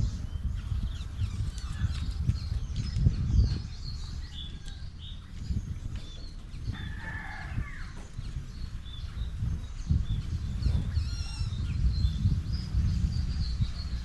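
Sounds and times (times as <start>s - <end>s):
low rumble: 0.0s - 14.0s
small birds chirping: 0.0s - 14.0s
rooster crowing: 6.7s - 8.0s.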